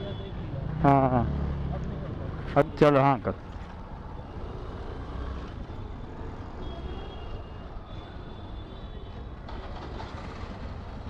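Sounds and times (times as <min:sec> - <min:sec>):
wind and road rumble: 0:09.2 - 0:11.0.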